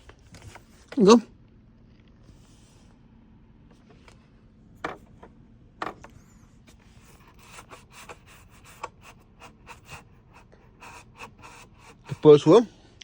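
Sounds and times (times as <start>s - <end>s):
hard plastic knocks: 4.8s - 6.2s
plastic clicks and scrapes: 4.8s - 12.2s.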